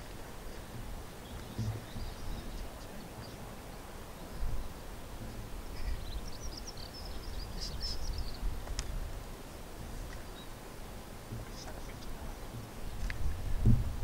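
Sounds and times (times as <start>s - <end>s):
small birds chirping: 0.0s - 10.6s, 11.2s - 13.4s.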